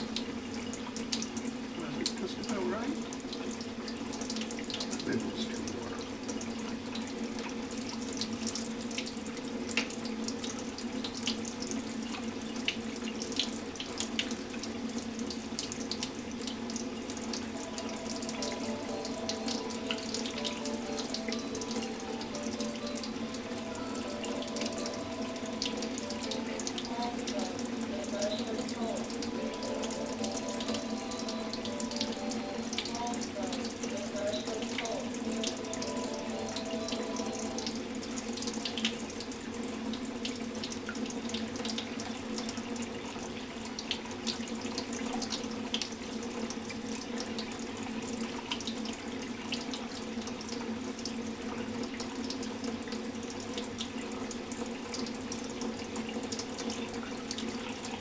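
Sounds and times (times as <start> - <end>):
tap water running into sink: 0.0 - 58.0
short steady notes: 17.5 - 38.1.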